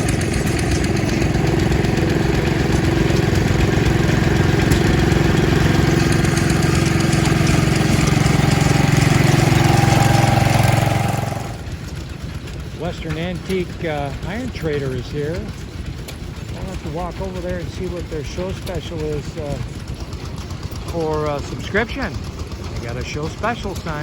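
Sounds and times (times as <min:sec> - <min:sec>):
hit-and-miss engine running: 0:00.0 - 0:24.0.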